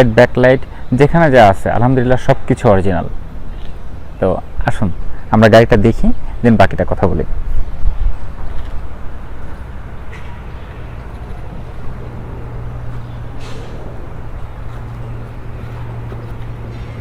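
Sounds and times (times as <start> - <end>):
traffic noise: 0.0 - 17.0
steady low hum: 7.3 - 17.0.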